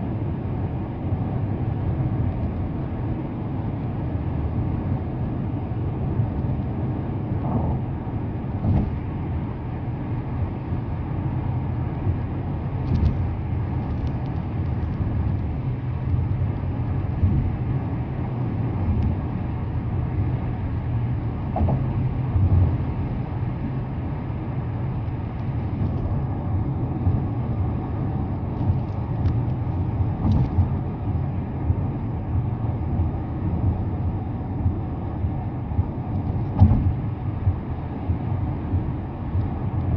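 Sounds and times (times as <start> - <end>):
engine and tyre rumble: 0.0 - 39.9
faint knocks and clicks: 21.5 - 22.7, 28.6 - 30.8, 36.1 - 37.0.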